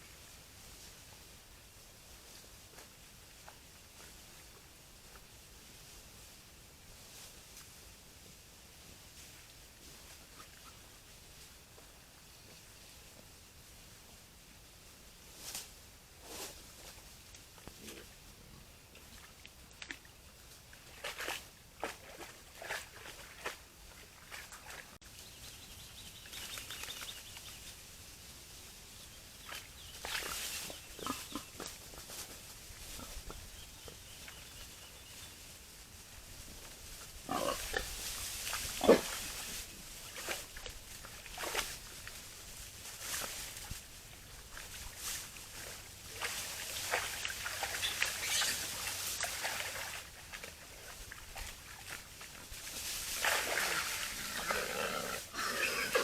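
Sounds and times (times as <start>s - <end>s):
boars rustling in dry leaves: 26.5s - 56.0s.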